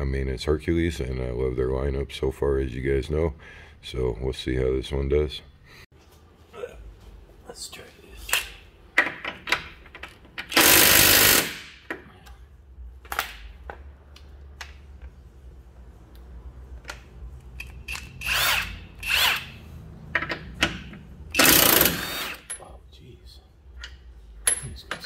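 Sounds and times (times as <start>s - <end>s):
impact wrench bursts: 10.4s - 11.9s, 17.6s - 19.7s, 20.3s - 22.6s
tool and socket clicks: 16.8s - 18.4s.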